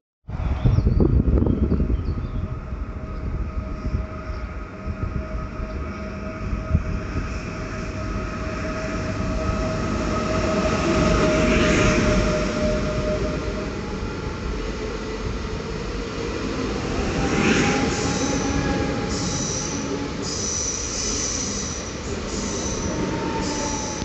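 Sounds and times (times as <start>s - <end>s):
train rumbling on track: 0.3s - 24.0s
high-pitched wheel squeal: 17.4s - 24.0s.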